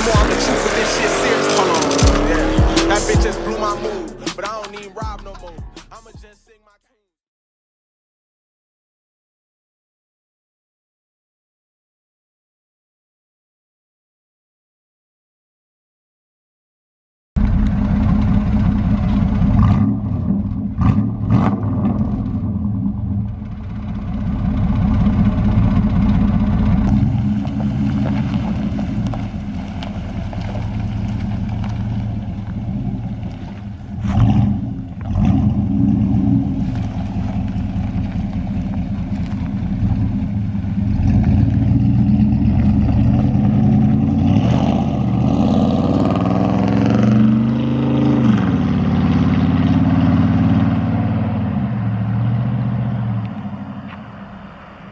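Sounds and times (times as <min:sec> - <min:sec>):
pickup truck engine revving: 0:00.0 - 0:06.1, 0:17.4 - 0:54.9.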